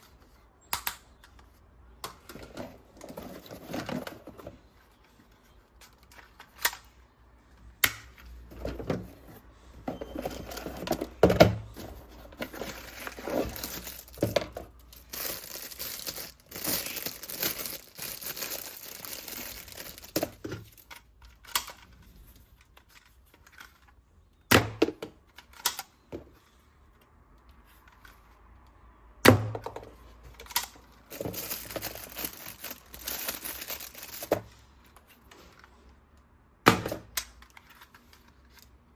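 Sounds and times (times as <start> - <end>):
packaging crinkling and tearing: 12.4 - 20.9, 31.0 - 34.5.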